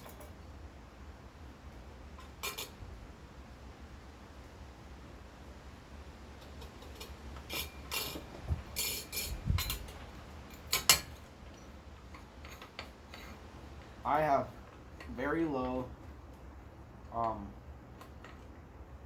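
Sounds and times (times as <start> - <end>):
metal hardware clinking and clicking: 2.2 - 2.8, 6.4 - 13.4.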